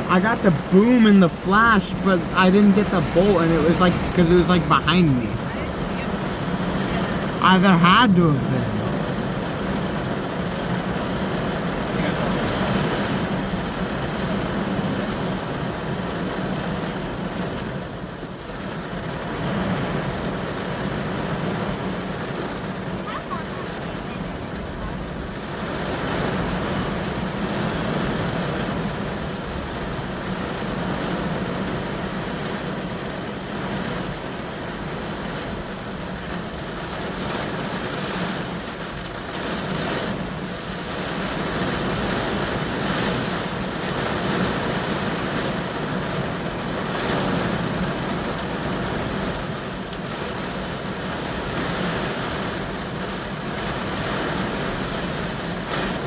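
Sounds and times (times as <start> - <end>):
rain beating on car: 0.0 - 56.0.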